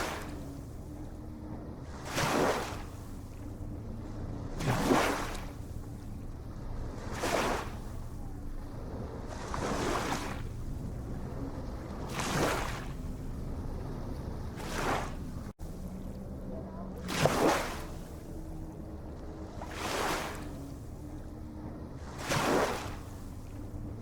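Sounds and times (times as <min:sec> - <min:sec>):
small ocean waves washing in: 0:00.0 - 0:24.0
low rumble: 0:05.4 - 0:17.2.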